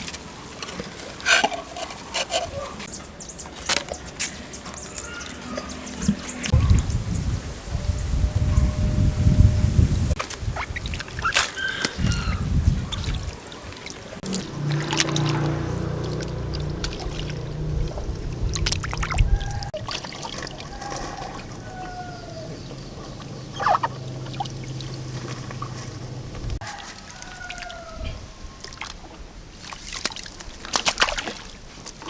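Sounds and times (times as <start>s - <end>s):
low hum: 4.9s - 10.2s, 14.2s - 19.7s, 21.3s - 26.6s
water pouring and trickling: 9.7s - 27.8s.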